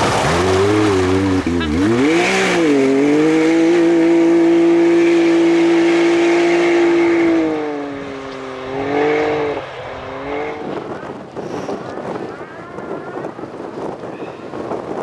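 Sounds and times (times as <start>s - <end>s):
rally car engine revving: 0.0s - 11.9s.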